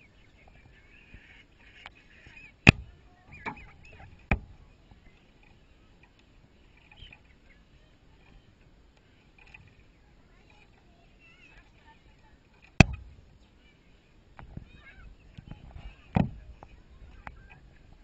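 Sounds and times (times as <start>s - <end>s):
chickens clucking and peeping: 0.0s - 8.6s.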